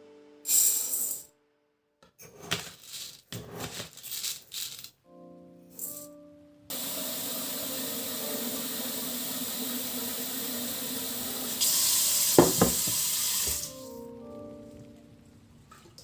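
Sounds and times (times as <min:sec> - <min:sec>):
tap water running into sink: 0:06.7 - 0:13.9.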